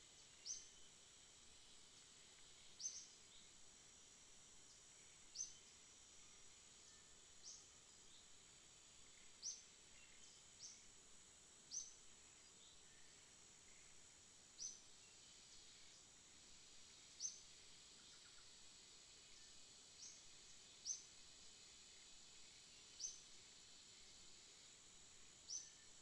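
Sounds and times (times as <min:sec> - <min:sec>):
small bird chirping: 0:00.0 - 0:00.9, 0:02.4 - 0:03.6, 0:04.7 - 0:05.8, 0:07.3 - 0:08.4, 0:09.1 - 0:10.9, 0:11.7 - 0:13.1, 0:14.6 - 0:16.1, 0:17.0 - 0:18.6, 0:19.3 - 0:21.2, 0:22.5 - 0:23.4, 0:25.4 - 0:26.0
steady high hiss: 0:00.0 - 0:26.0.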